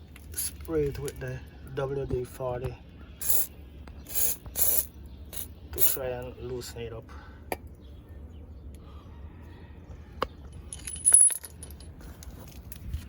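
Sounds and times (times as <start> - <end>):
metal hand tools clinking: 3.2 - 3.5, 4.1 - 6.0, 10.7 - 11.9
metallic jangling: 10.5 - 12.0.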